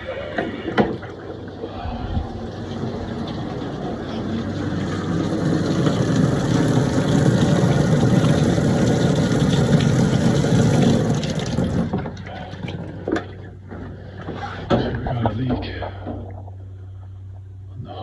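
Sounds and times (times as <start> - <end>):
water gushing from valves: 0.0 - 13.5.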